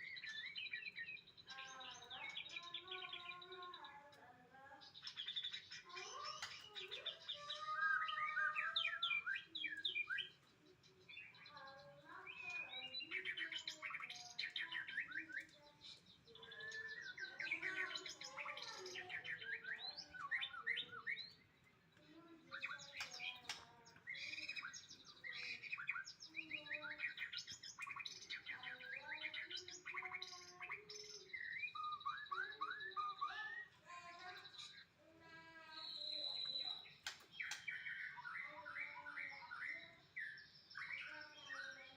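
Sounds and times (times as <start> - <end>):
bird singing chirps and trills: 0.0 - 41.9.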